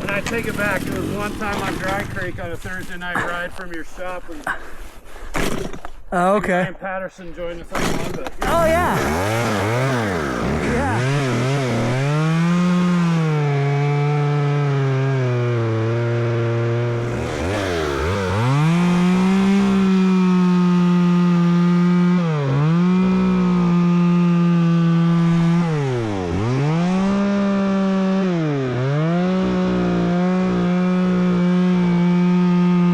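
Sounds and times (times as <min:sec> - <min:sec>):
dirt bike engine revving: 0:00.0 - 0:03.0, 0:07.7 - 0:32.9.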